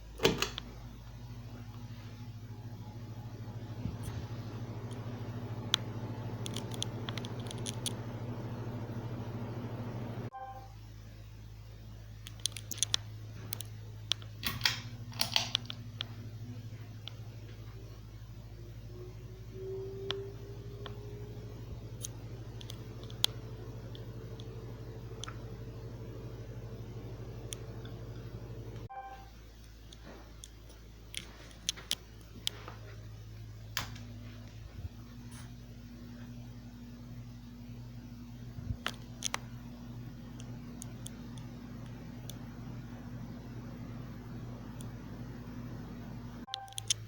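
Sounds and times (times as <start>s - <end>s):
ceiling fan motor humming: 0.0s - 47.0s
sharp clicks and ticks: 22.0s - 24.5s, 46.5s - 47.0s.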